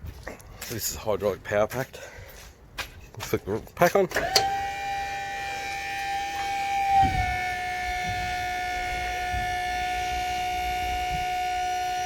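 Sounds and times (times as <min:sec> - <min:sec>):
hydraulic power pack whining: 0:04.1 - 0:12.0.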